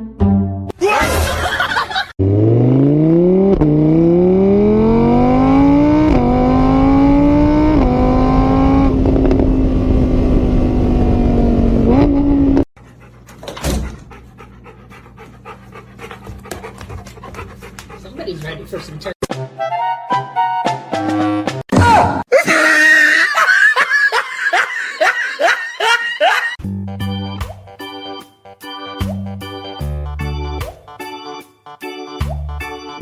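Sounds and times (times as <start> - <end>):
car engine revving: 2.2 - 12.7.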